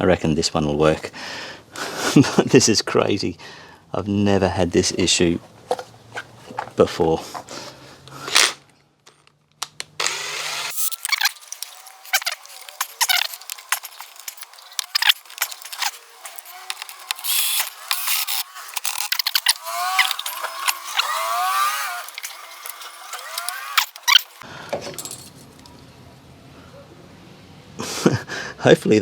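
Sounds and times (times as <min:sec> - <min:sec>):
squeaks: 0:10.7 - 0:24.4
metallic tool clicks and rattles: 0:10.7 - 0:25.4.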